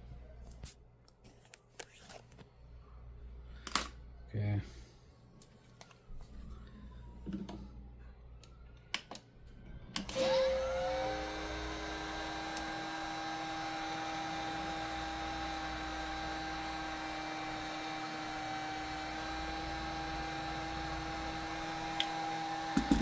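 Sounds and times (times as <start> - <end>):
heat gun blower hum: 10.1 - 23.0.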